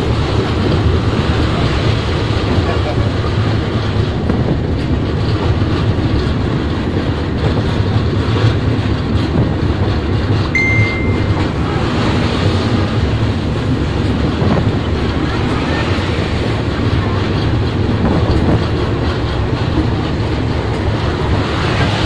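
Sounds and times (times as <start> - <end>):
train rumbling at speed: 0.0 - 22.0
brief high-pitched tone: 10.6 - 11.6.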